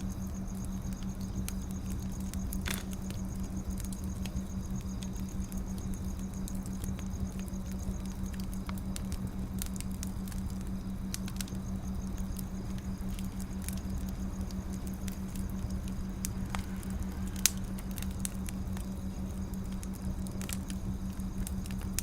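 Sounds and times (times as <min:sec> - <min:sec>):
wood fire crackling: 0:00.0 - 0:22.0
low hum: 0:07.4 - 0:22.0.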